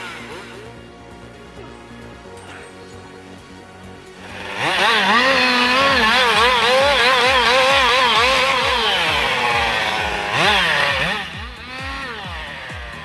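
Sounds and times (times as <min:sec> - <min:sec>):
chainsaw engine at high revs: 0:00.0 - 0:01.3, 0:03.9 - 0:13.0
pulsing low beat: 0:00.0 - 0:13.0.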